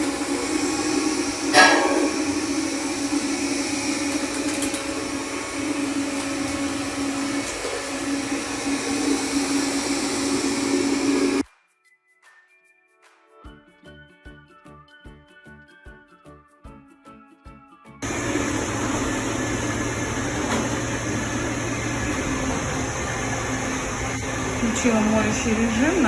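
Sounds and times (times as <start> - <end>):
robot vacuum motor hum: 0.0 - 11.4, 18.0 - 26.0
short loud knock: 1.6 - 2.3.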